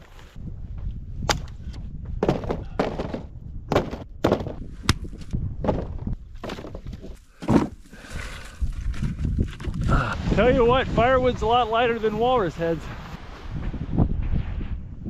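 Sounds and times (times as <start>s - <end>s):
dry wood snapping and knocking: 1.3s - 1.6s, 2.2s - 7.8s.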